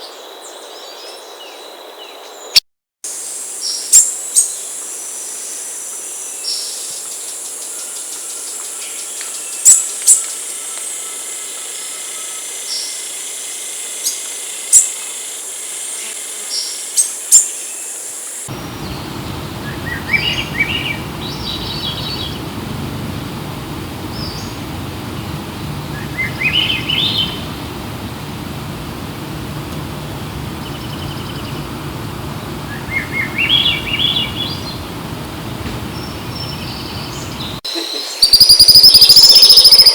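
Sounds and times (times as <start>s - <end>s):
insects hissing: 3.1s - 39.9s
low rumble: 18.5s - 37.6s
bird call with rising notes: 18.5s - 39.9s
birds chirping: 18.5s - 39.9s.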